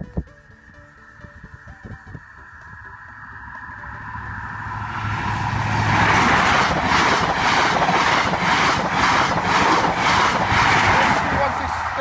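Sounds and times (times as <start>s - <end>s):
train rushing past: 2.2s - 12.0s
train wheels clattering over rail joints: 6.0s - 11.5s.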